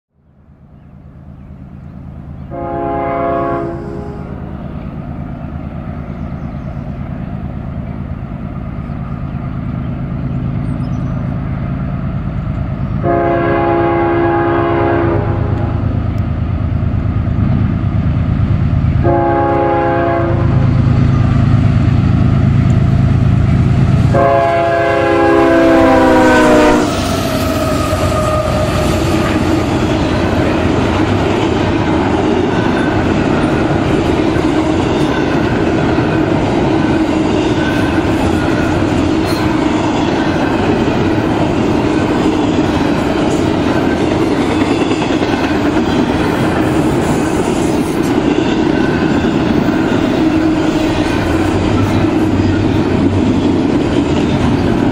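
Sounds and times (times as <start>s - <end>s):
diesel locomotive engines rumbling: 0.2s - 54.9s
train air horn blasts: 2.5s - 4.6s, 13.0s - 16.0s, 19.0s - 20.8s, 24.0s - 30.4s
train wheels clattering: 20.8s - 54.9s.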